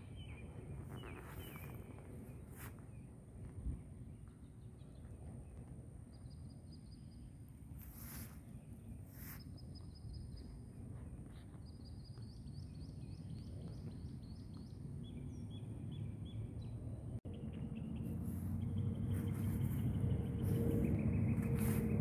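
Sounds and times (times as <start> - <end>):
small birds singing: 0.0 - 22.0
rustling: 0.6 - 2.9, 7.8 - 8.5, 21.4 - 22.0
low rumble: 16.9 - 22.0.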